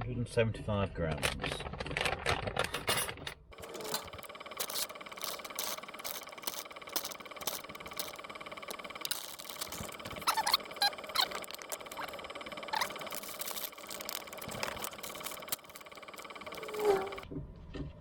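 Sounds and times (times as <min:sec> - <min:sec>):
taps clicks and scrapes: 0:01.1 - 0:18.0
heater whine: 0:03.5 - 0:17.3
short squeaky sounds: 0:08.8 - 0:17.2.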